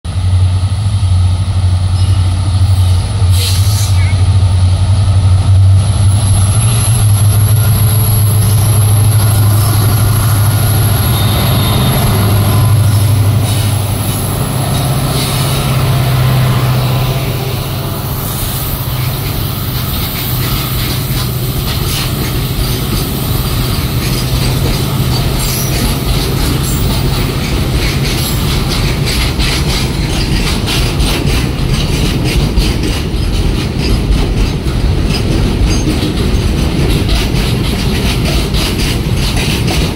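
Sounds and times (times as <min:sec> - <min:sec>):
locomotive engine drone: 0:00.1 - 0:39.9
wagon wheels clicking on rail joints: 0:17.4 - 0:39.9.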